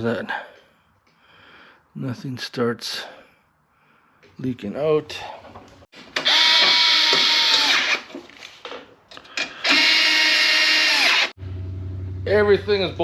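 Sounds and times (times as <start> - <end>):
cordless power tool running: 6.2 - 8.0, 9.6 - 11.4.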